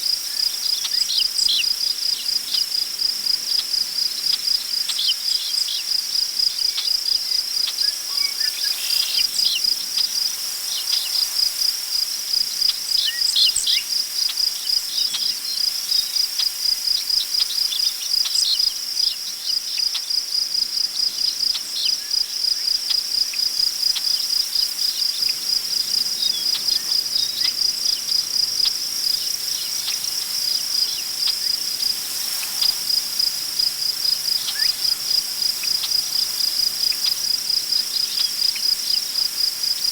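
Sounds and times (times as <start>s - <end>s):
crickets trilling: 0.0s - 39.9s
wind rustling grass: 7.6s - 17.9s, 23.7s - 39.9s.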